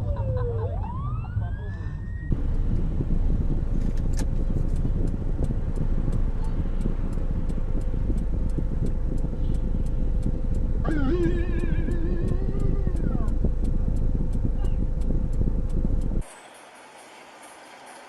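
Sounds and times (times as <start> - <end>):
car road and engine rumble: 0.0 - 18.0
faint steady whine: 0.0 - 18.0
faint ticking: 2.3 - 16.2.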